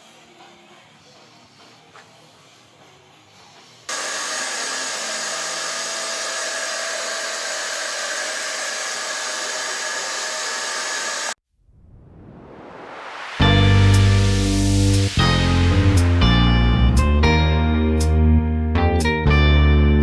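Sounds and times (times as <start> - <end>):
fan whirring: 3.9 - 13.1.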